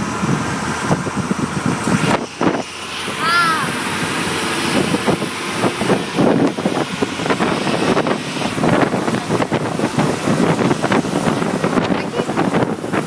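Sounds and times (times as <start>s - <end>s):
rush of moving air: 0.0s - 13.0s
wind buffeting microphone: 0.0s - 13.0s.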